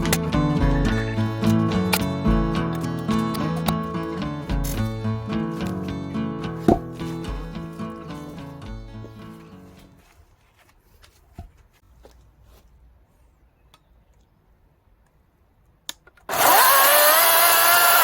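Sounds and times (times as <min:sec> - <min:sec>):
chainsaw whining and cutting wood: 0:16.3 - 0:18.0.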